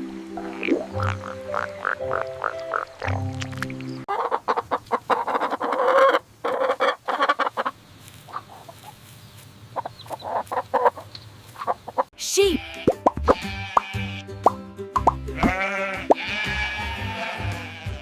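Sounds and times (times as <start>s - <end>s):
chickens clucking: 0.0s - 12.1s.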